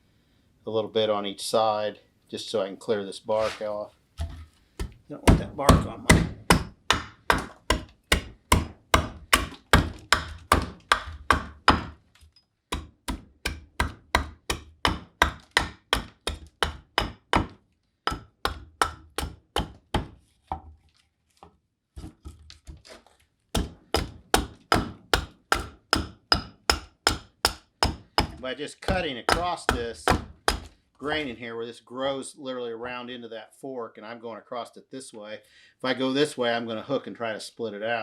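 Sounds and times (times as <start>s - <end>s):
hatchet chopping wood: 4.8s - 12.0s, 12.7s - 20.2s, 23.6s - 30.8s.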